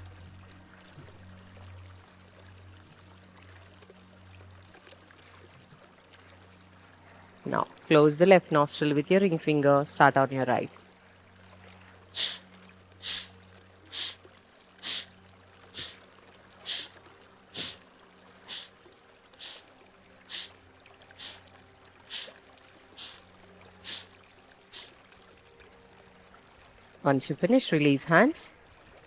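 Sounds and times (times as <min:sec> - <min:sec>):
sharp forceful nasal exhalations: 0:12.2 - 0:12.4, 0:13.0 - 0:13.3, 0:13.9 - 0:14.2, 0:14.8 - 0:15.1, 0:15.8 - 0:16.0, 0:16.6 - 0:16.9, 0:17.6 - 0:17.8, 0:18.5 - 0:18.7, 0:19.4 - 0:19.7, 0:20.3 - 0:20.6, 0:21.2 - 0:21.4, 0:22.1 - 0:22.4, 0:23.0 - 0:23.2, 0:23.8 - 0:24.1.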